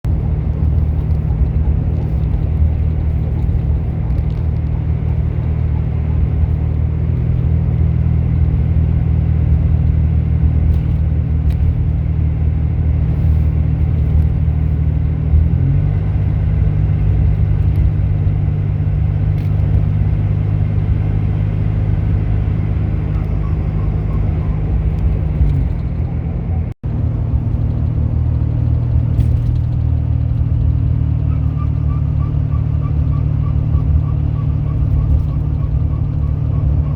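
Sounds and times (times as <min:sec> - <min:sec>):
car engine droning: 0:00.0 - 0:36.9.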